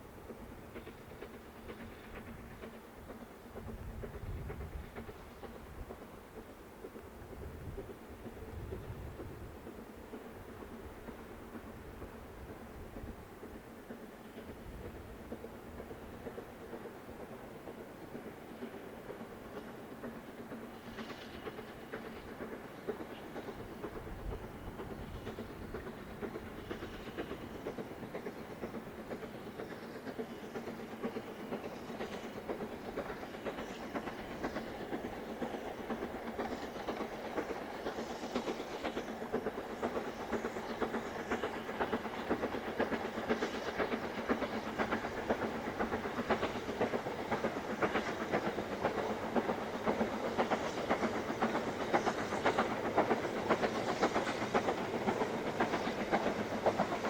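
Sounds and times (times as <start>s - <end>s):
steam locomotive exhaust beats: 0.0s - 57.0s.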